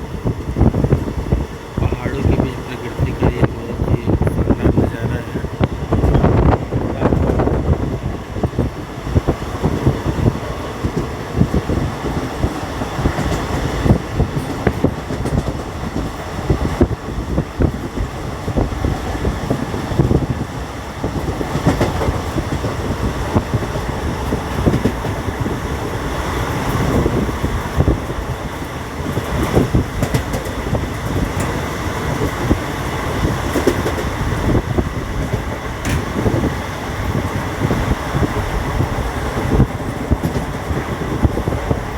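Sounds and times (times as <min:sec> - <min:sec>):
moving vehicle rumble: 0:00.0 - 0:41.9.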